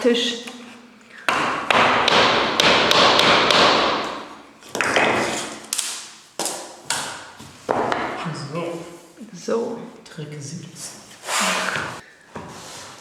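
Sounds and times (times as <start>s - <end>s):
hammer knocking on tapping block: 1.3s - 4.2s.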